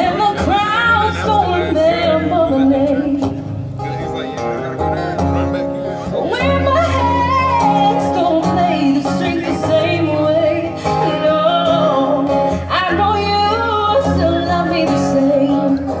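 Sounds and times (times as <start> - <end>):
acoustic guitar chords: 0.0 - 16.0
person singing: 5.8 - 16.0.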